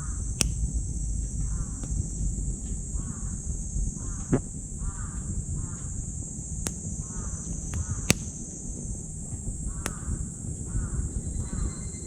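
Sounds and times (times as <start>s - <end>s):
high insect drone: 0.0s - 12.0s
wood fire crackling in stove: 0.1s - 3.0s, 6.6s - 8.4s.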